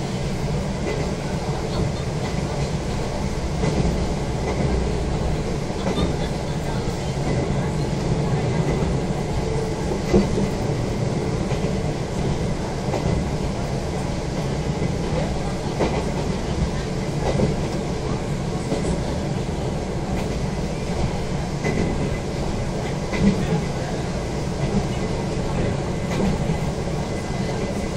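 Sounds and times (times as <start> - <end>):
train interior rumble: 0.0 - 27.9.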